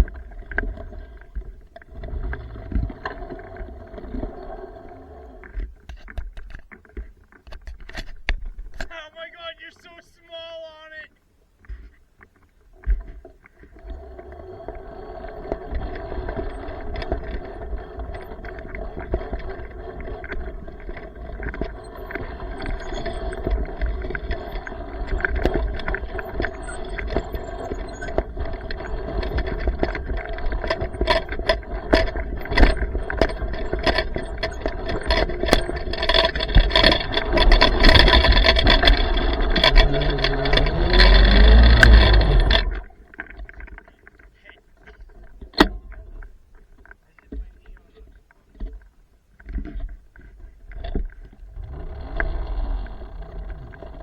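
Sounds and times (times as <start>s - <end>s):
electric motor whining: 13.8s - 43.0s, 51.5s - 54.0s
bike rattles and knocks: 15.8s - 43.0s.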